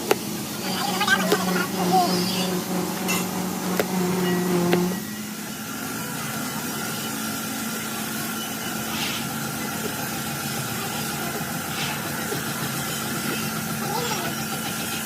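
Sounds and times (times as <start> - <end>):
motor humming: 0.0 - 15.0
short hiss: 8.9 - 9.3.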